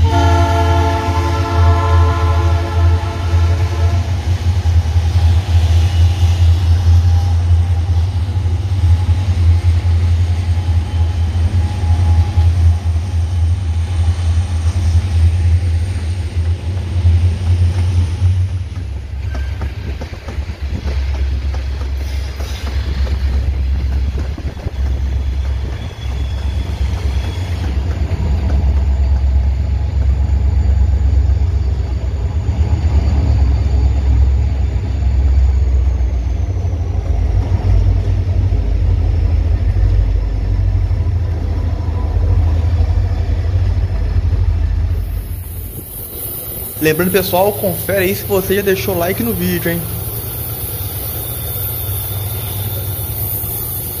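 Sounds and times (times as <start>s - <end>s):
freight wagon wheels clattering on rail: 0.0s - 33.3s
diesel locomotive engine rumble: 0.0s - 54.0s.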